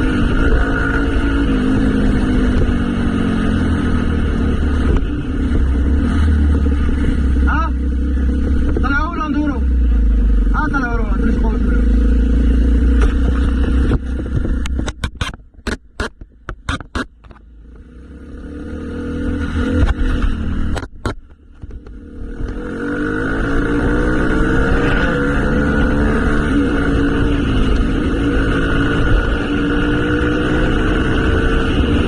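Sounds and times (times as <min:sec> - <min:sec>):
motorcycle engine rumbling and revving: 0:00.0 - 0:32.0
sharp clicks: 0:14.6 - 0:17.4.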